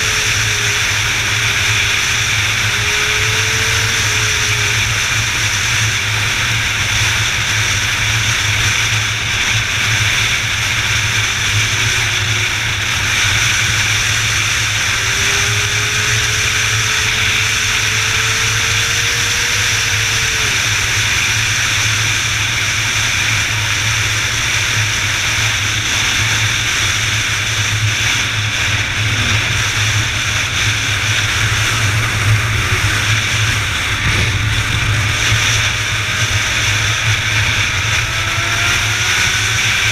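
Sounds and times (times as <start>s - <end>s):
road and wind noise: 0.0s - 39.9s
faint engine note: 27.9s - 39.6s.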